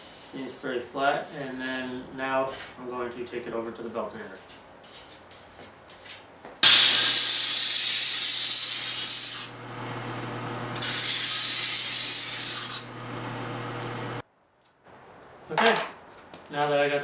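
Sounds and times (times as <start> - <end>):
sander grinding sheet metal: 6.6 - 13.0
belt sander motor hum: 9.5 - 14.2.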